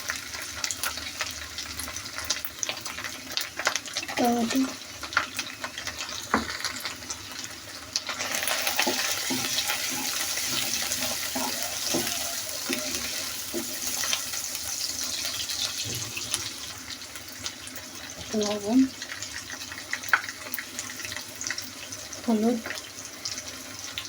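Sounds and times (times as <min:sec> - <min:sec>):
tomatoes sizzling in hot oil: 0:00.0 - 0:24.0
stirring knocks in a pan: 0:08.5 - 0:14.3, 0:15.6 - 0:16.6.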